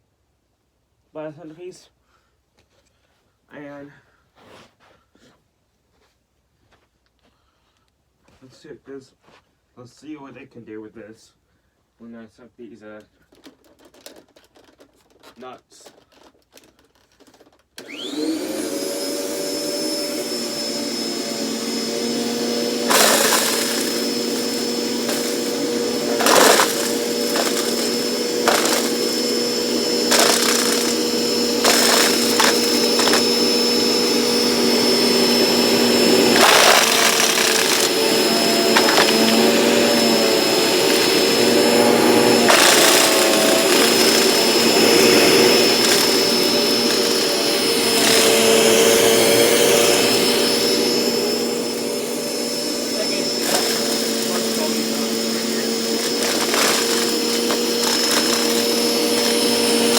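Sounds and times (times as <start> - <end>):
handheld vacuum motor whining: 17.2 - 59.9
nuts rattling through nozzle: 22.8 - 48.6, 55.5 - 59.9.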